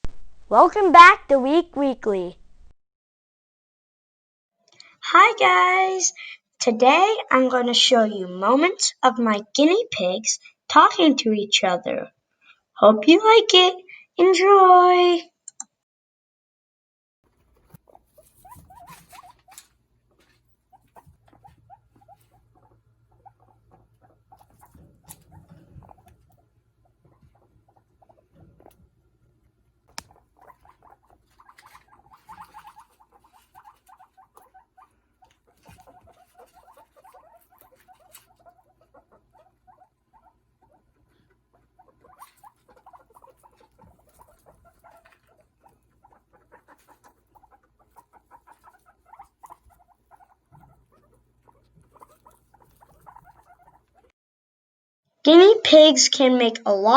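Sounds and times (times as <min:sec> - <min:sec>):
guinea pigs vocalizing: 0:17.3 - 0:54.1.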